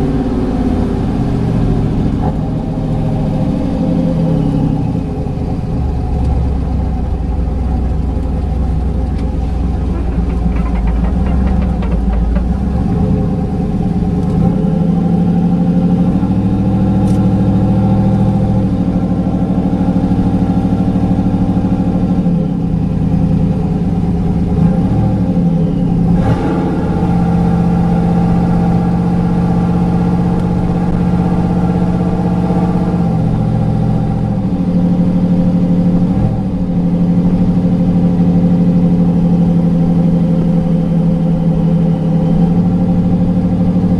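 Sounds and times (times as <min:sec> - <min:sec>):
vehicle engine running from cab: 0:00.0 - 0:43.9.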